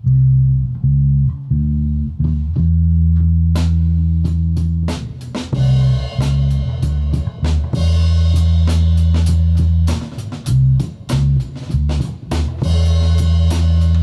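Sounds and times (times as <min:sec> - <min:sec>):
electric bass: 0:00.0 - 0:14.0
drum cymbals: 0:03.6 - 0:14.0.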